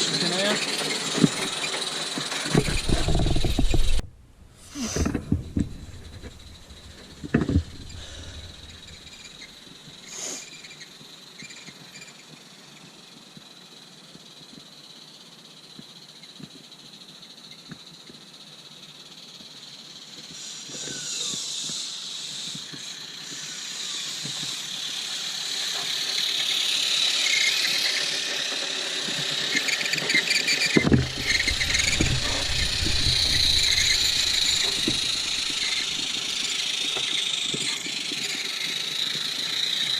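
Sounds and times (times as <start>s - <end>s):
model steam locomotive chuffing: 0.0s - 15.0s, 18.4s - 39.9s
heavy thump: 2.6s - 9.0s, 30.8s - 36.1s
knocks: 30.8s - 36.1s.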